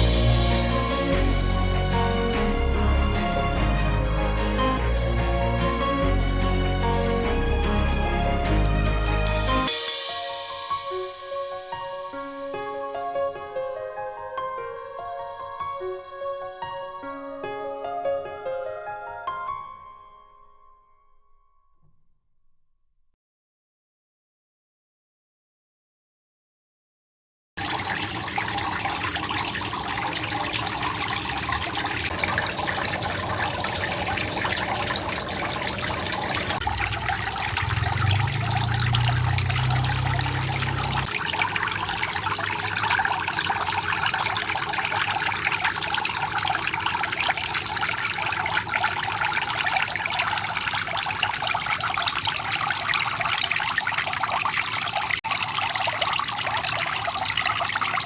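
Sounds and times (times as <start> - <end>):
fountain water trickling and splashing: 0.0 - 9.7, 27.6 - 58.0.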